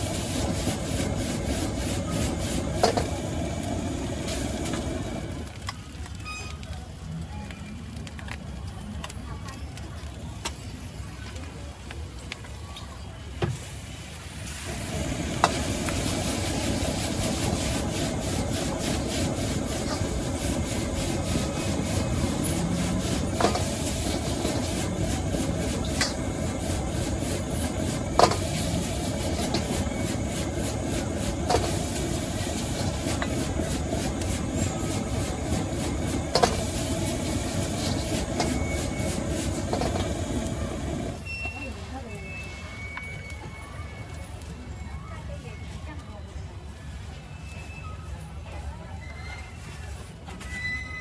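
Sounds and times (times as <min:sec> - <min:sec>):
wok stir-frying roar and sizzle: 0:00.0 - 0:05.9, 0:13.6 - 0:41.2.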